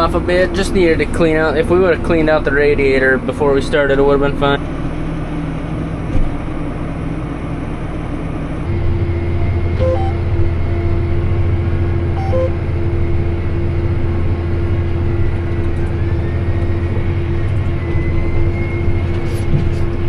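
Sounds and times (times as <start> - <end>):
tractor engine droning: 0.0 - 20.0
two-note electronic beep: 9.8 - 10.8, 12.1 - 12.6.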